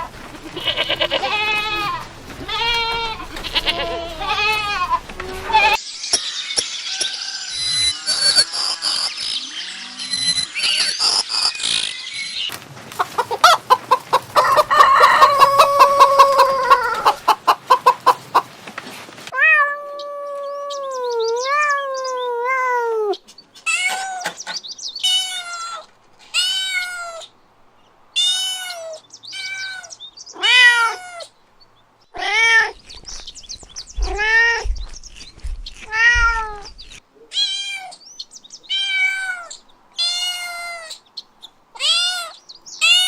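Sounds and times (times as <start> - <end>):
cat meowing: 19.3 - 24.3, 35.9 - 36.7, 38.7 - 40.9.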